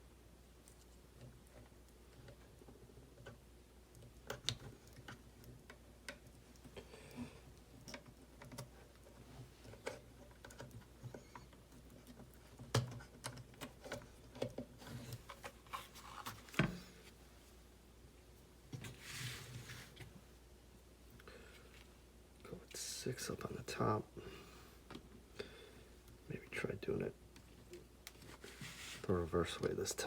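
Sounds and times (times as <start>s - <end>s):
small parts clicking and tapping: 7.5s - 14.7s.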